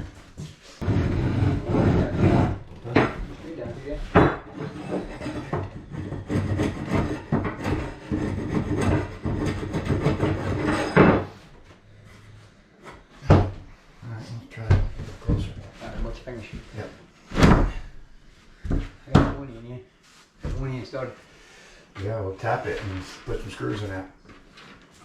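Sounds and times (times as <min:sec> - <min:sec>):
wood scraping on wood: 0:00.4 - 0:13.1
sharp wooden knocks: 0:04.1 - 0:11.3.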